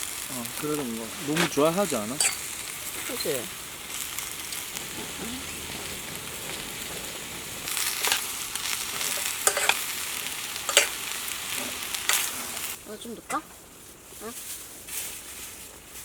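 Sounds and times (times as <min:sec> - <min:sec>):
food sizzling in a pan: 0:00.0 - 0:16.0
utensil scraping a pan: 0:01.2 - 0:03.4, 0:04.0 - 0:12.8.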